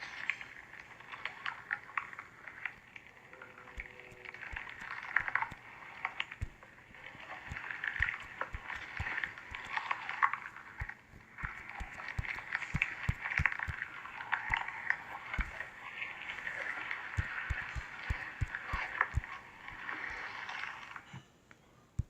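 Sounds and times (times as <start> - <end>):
soft thumps: 6.4 - 10.0, 10.7 - 13.8, 17.2 - 19.3.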